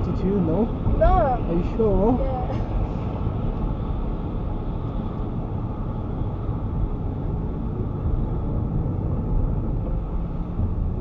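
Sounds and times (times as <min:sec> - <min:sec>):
car cabin road noise: 0:00.0 - 0:11.0.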